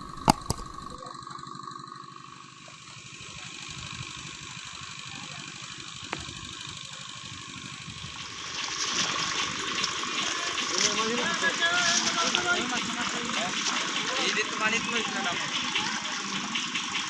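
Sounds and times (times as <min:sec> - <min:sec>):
small engine idling: 0:00.0 - 0:17.0
water gushing: 0:08.0 - 0:17.0.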